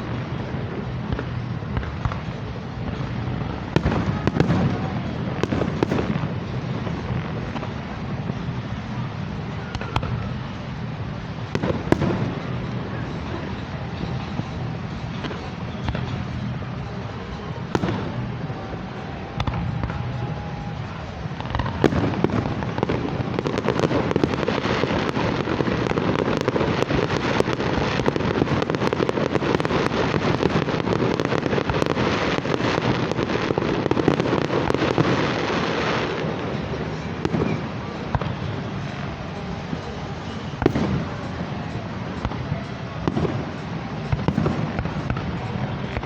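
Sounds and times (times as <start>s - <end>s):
fireworks bangs: 0.0s - 46.0s.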